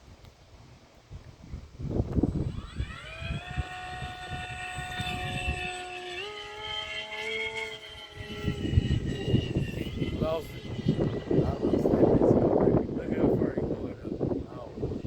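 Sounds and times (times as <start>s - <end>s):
model aircraft motor whine: 1.7s - 15.0s.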